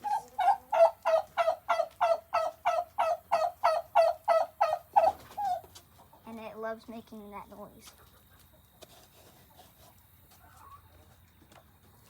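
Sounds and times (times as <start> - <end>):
turkey calling: 0.0 - 5.7.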